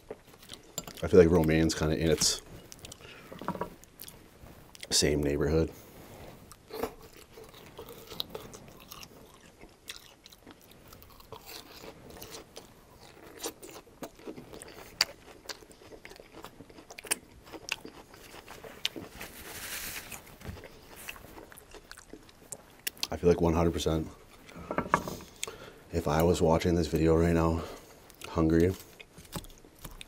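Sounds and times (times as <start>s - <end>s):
crunchy chewing of lettuce: 6.4s - 23.1s
soft hiss: 19.0s - 21.2s.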